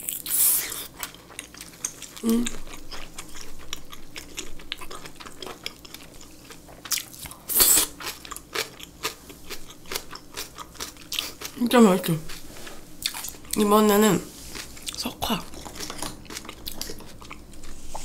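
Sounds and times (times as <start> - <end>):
wet chewing clicks: 14.6 - 18.0.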